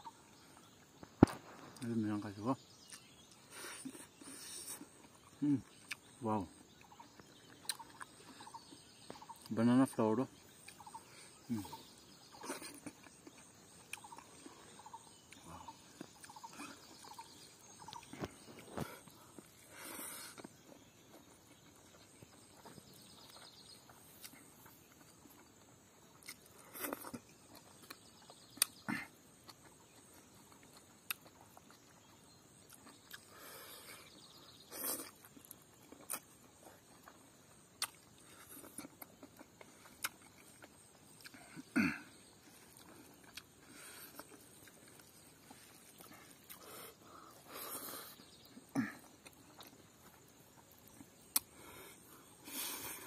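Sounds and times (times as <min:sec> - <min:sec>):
man chewing: 0:02.8 - 0:06.1, 0:06.7 - 0:09.5, 0:10.5 - 0:53.0
lip smacks and clicks: 0:50.8 - 0:51.6.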